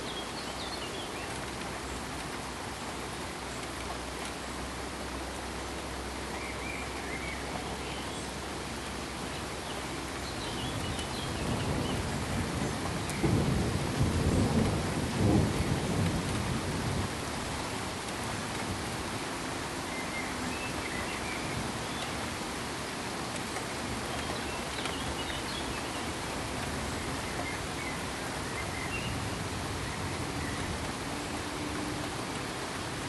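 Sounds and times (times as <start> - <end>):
rain-like hiss: 0.0 - 33.0
distant thunder rumbling: 10.6 - 20.2.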